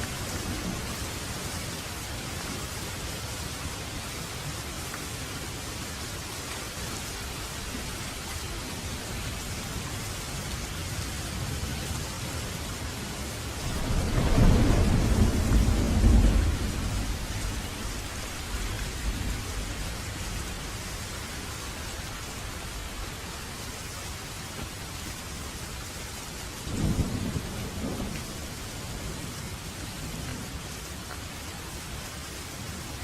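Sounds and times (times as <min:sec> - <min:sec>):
steady rain: 0:00.0 - 0:33.0
thunder rumbling: 0:13.2 - 0:21.0, 0:26.7 - 0:29.4.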